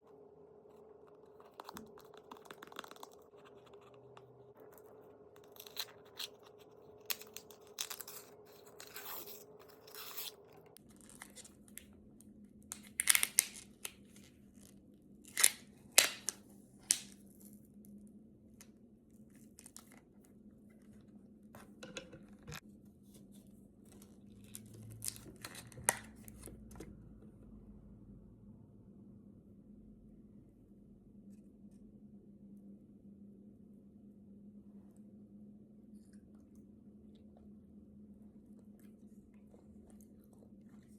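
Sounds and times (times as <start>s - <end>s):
faint steady hum: 0.0s - 40.9s
plastic packaging crinkling and tearing: 5.4s - 11.9s, 12.7s - 14.5s, 15.3s - 17.5s, 23.9s - 26.5s.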